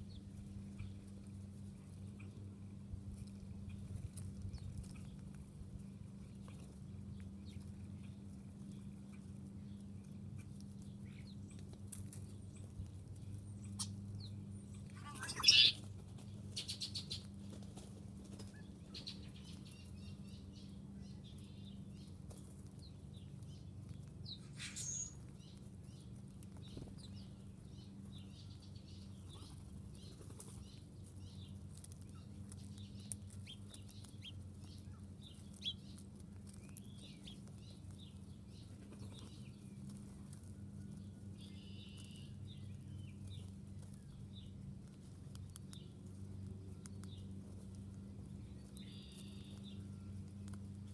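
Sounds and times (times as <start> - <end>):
steady low hum: 0.0 - 50.9
bird chirps: 13.5 - 15.9, 16.5 - 17.3, 23.2 - 39.8, 40.9 - 44.5, 48.3 - 50.9
loud bird call: 15.0 - 15.8.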